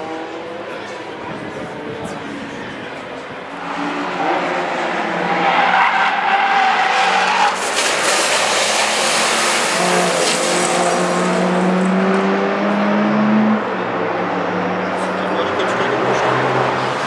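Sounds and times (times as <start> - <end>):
car tyres squealing: 3.4 - 12.0, 14.8 - 17.0.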